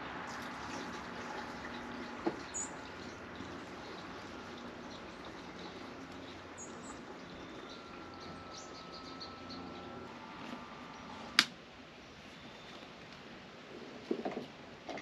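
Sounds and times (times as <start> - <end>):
faint bird chirps: 3.8 - 10.2.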